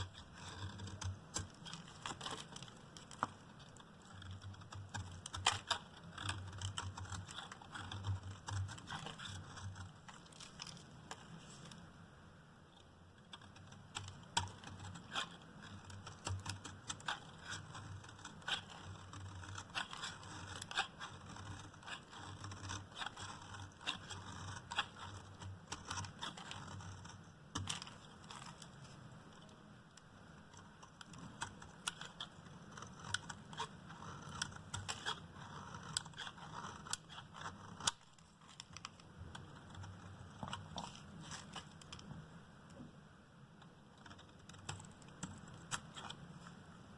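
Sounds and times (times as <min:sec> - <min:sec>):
knife cutting hard soap: 0:14.5 - 0:28.7.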